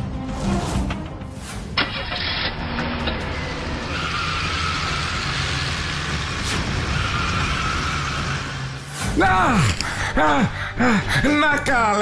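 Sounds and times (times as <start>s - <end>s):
car ignition start: 1.8s - 3.2s
car engine humming: 1.8s - 9.0s.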